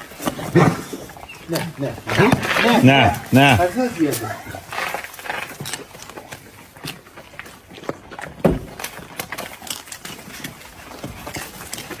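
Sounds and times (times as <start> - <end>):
dogs crunching food: 0.0 - 12.0.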